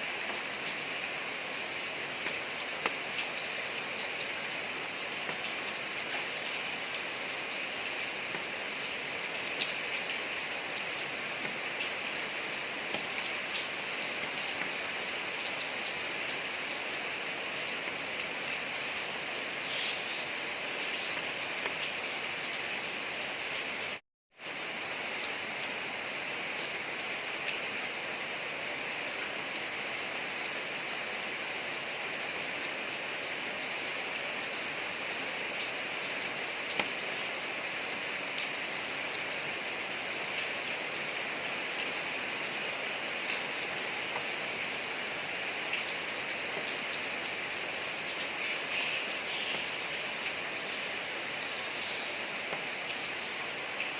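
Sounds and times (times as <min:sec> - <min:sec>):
rain falling on a street: 0:00.0 - 0:53.9.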